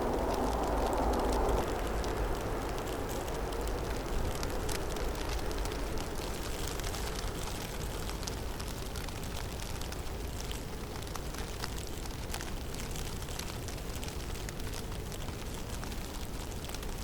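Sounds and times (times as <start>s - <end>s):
wind rushing through forest: 0.0s - 9.4s.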